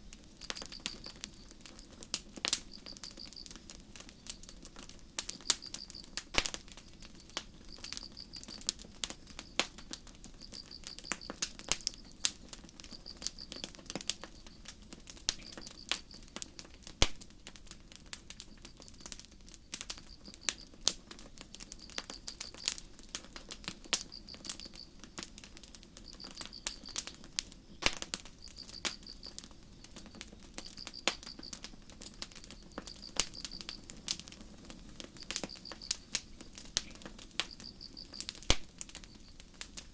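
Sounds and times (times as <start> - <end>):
crickets chirping: 0.0 - 16.4, 18.4 - 22.9, 23.8 - 39.6
campfire crackling: 0.0 - 39.9.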